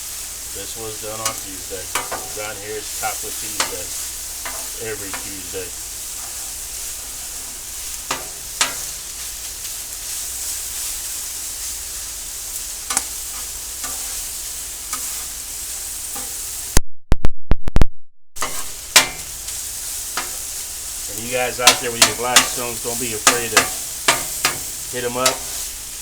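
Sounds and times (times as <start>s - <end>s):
chicken sizzling on a griddle: 0.0s - 16.8s, 18.4s - 26.0s
metal spatula scrapes and clicks: 16.1s - 16.4s, 18.4s - 19.2s.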